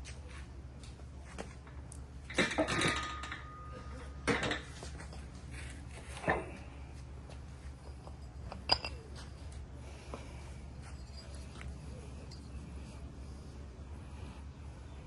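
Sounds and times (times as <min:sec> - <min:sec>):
metal tools clanking: 0:02.3 - 0:05.4.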